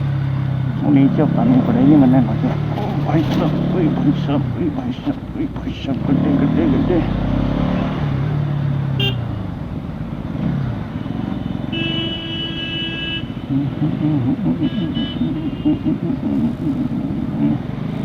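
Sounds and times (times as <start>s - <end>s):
motorcycle engine: 0.0s - 16.3s
wind and road noise: 0.0s - 18.0s
vehicle horn: 9.0s - 9.5s, 11.0s - 13.4s, 14.6s - 15.7s.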